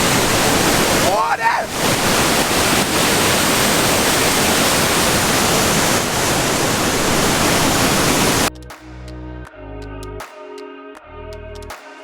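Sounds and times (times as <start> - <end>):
waterfall roaring: 0.0 - 8.5
electronic music: 8.5 - 12.0.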